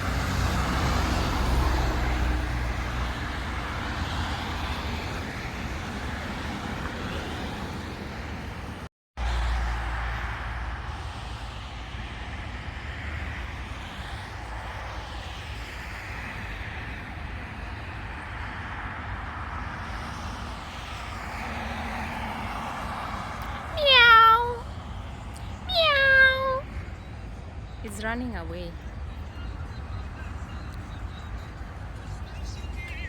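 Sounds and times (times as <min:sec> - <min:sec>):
road traffic hum: 0:00.0 - 0:33.0
cat meowing: 0:23.4 - 0:24.6, 0:25.7 - 0:26.6.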